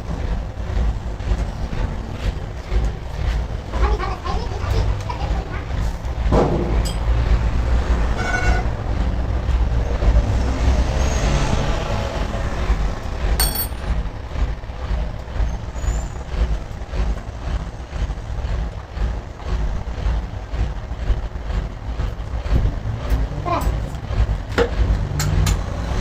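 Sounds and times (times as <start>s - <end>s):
diesel truck engine rumbling: 0.0s - 26.0s
sharp metallic clink: 13.4s - 14.0s.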